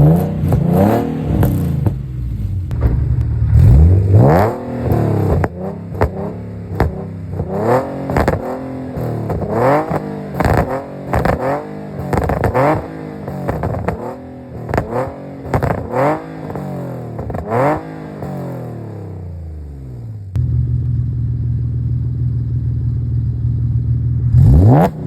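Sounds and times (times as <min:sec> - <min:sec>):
exhaust cracks: 0:00.0 - 0:19.0
car engine revving: 0:00.0 - 0:20.9, 0:24.1 - 0:25.0
car engine idling: 0:00.0 - 0:24.6.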